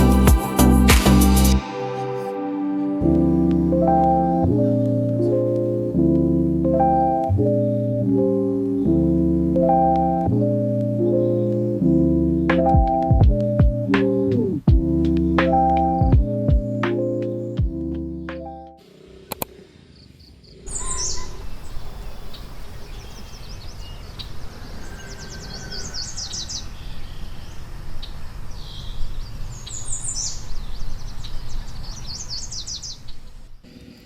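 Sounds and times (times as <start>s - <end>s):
small birds singing: 7.5s - 13.9s, 19.8s - 33.8s.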